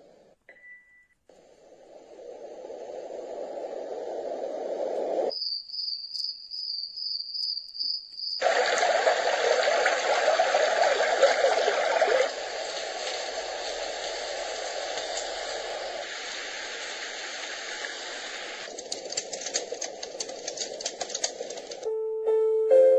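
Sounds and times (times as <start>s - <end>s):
white noise machine rushing: 1.3s - 5.3s, 9.3s - 21.8s.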